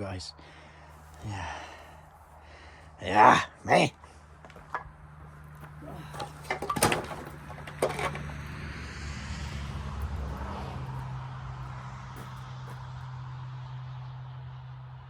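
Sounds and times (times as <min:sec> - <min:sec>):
engine running: 0:04.0 - 0:15.0
metal knocks and clanks: 0:04.5 - 0:08.4.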